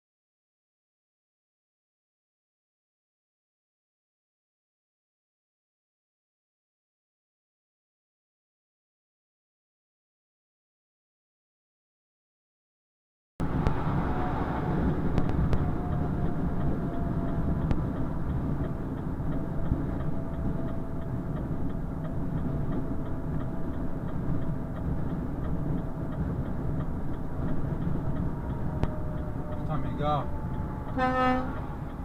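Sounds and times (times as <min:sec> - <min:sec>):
truck engine and road rumble: 0:13.4 - 0:32.0
light regular ticking: 0:15.1 - 0:32.0.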